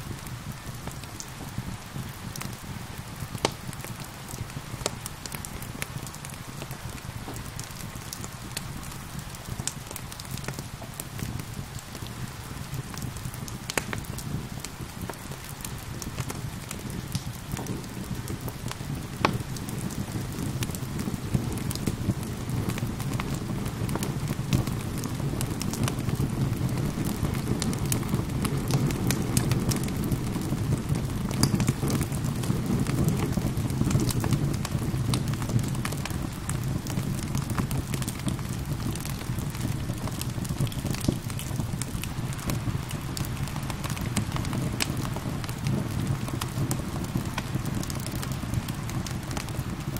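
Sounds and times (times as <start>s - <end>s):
steady rain: 0.0s - 49.9s
wood fire crackling: 0.0s - 49.9s.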